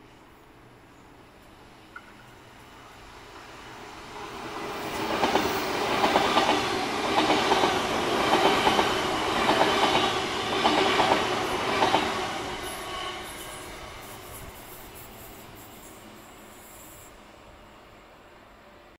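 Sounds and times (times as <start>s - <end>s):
train wheels clickety-clacking: 1.4s - 2.5s, 4.1s - 17.2s.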